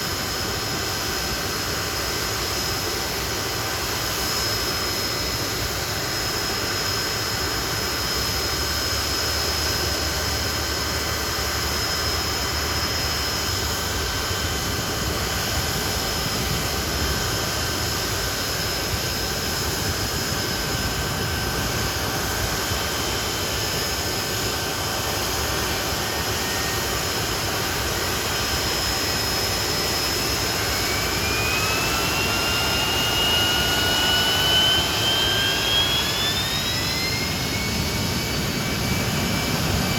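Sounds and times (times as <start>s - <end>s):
jet engines whining: 0.0s - 39.9s
engine spooling up: 19.0s - 39.9s.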